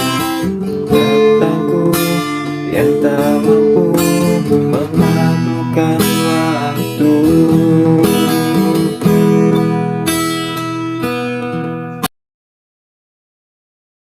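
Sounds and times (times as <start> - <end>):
acoustic guitar strumming: 0.0 - 12.1.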